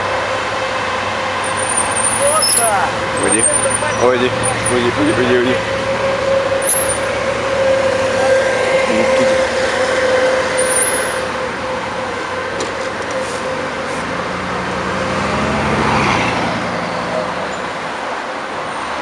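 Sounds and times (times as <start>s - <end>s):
street traffic noise: 0.0s - 19.0s
brake pads squealing: 1.4s - 14.2s
vehicle passing: 2.1s - 12.4s, 13.1s - 18.0s.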